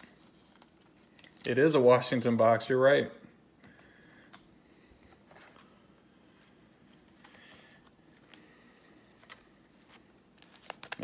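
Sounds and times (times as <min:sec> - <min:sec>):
trading cards clicking and rustling: 0:09.2 - 0:11.0.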